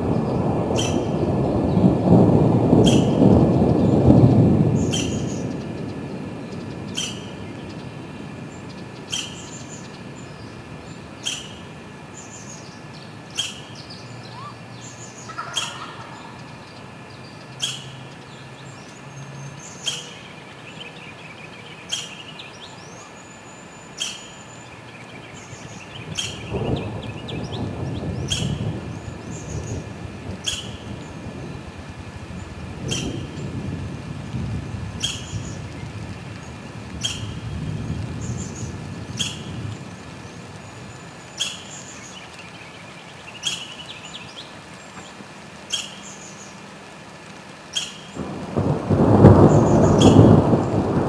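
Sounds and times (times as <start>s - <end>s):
faint birds calling: 0.0s - 2.0s, 2.8s - 4.0s, 4.7s - 34.1s, 34.9s - 51.0s
low thunder rumbling: 0.0s - 13.4s, 25.1s - 42.1s, 48.2s - 51.0s
rain hiss: 0.0s - 51.0s
bird chirping sharply: 41.4s - 42.3s, 43.3s - 44.4s, 47.7s - 48.2s.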